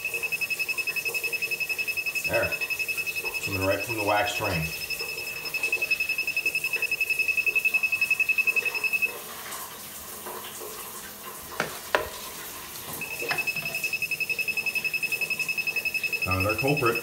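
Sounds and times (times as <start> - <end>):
meter alarm beeping rapidly: 0.0 - 9.2, 13.0 - 17.0.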